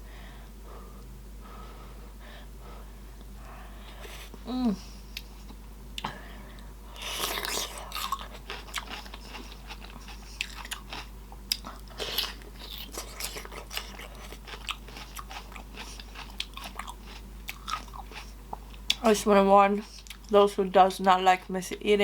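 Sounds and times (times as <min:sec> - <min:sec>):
wet chewing and lip smacking: 0:07.0 - 0:19.0, 0:19.9 - 0:20.3.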